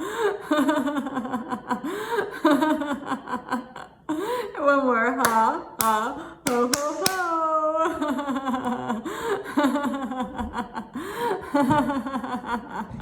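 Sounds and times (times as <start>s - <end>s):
woman laughing: 7.5s - 10.9s.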